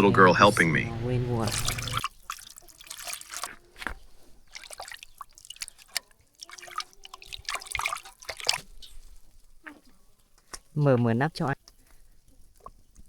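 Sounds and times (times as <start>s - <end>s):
water splashing and trickling: 0.7s - 13.0s.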